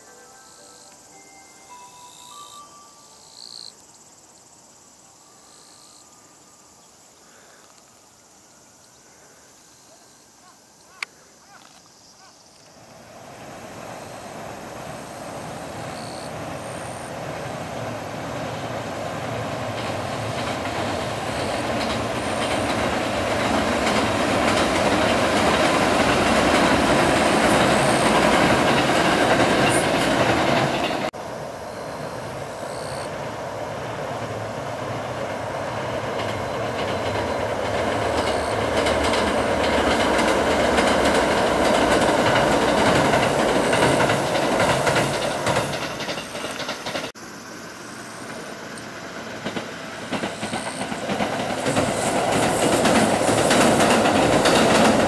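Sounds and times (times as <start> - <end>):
electric train crossing bridge: 0.0 - 55.0.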